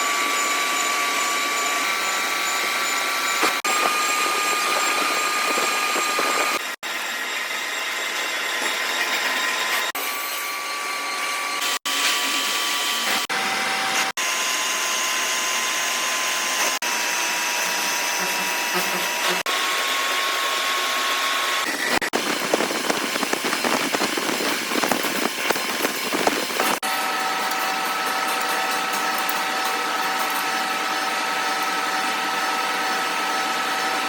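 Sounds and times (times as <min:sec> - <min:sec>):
power tool whirring and whining: 0:00.0 - 0:34.0.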